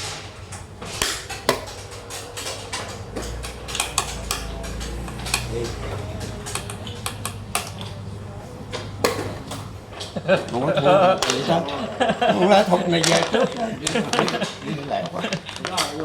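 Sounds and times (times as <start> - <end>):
game pieces clicking on board: 0.5 - 8.1, 8.7 - 16.0.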